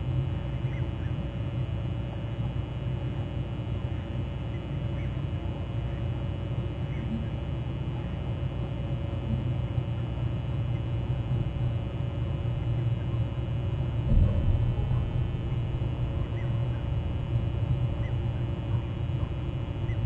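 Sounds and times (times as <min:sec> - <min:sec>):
low outdoor rumble: 0:00.0 - 0:20.0
brief thump: 0:14.0 - 0:16.9.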